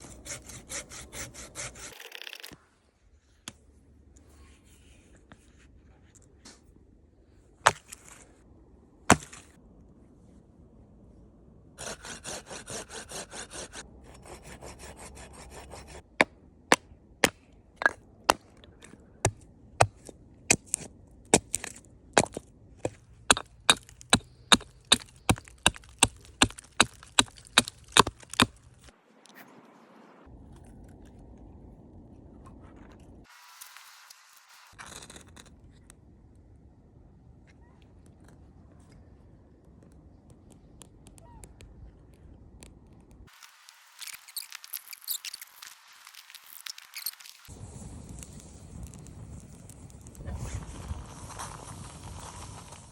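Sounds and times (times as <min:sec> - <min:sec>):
saw cutting log: 0:00.0 - 0:02.6, 0:11.8 - 0:16.3, 0:23.3 - 0:28.6
blows splitting wood: 0:23.3 - 0:28.9.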